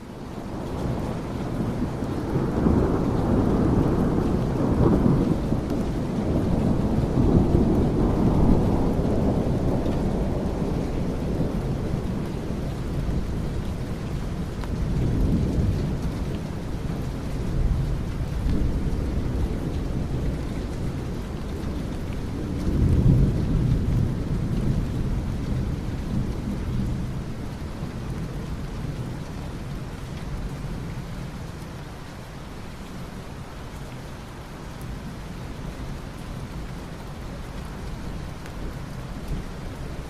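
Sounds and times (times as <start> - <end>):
steady rain: 0.0 - 40.0
thunder rumbling: 0.4 - 31.3.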